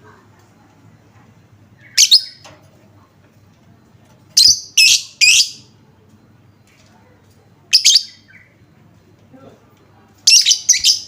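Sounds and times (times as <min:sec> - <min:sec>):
lovebird shrill calls: 0:01.8 - 0:02.4.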